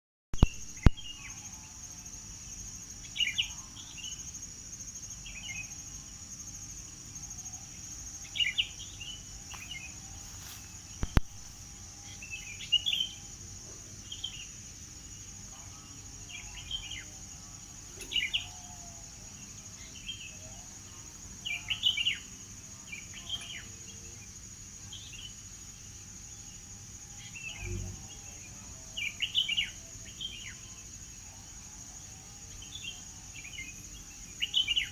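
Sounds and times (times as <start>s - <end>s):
high-pitched insect buzz: 0.4s - 34.9s
songbird chirping: 0.4s - 34.9s
sharp click: 11.0s - 11.4s.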